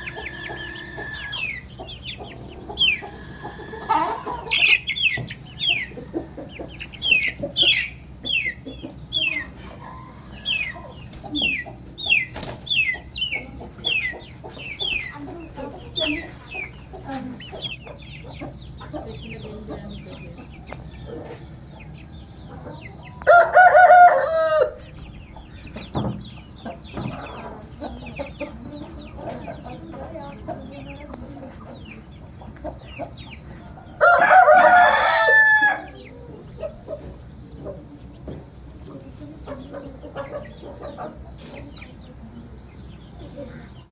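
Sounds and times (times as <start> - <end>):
rooster crowing: 0.0 - 1.7, 23.2 - 24.8, 33.8 - 36.0
chickens clucking and chirping: 0.0 - 43.9.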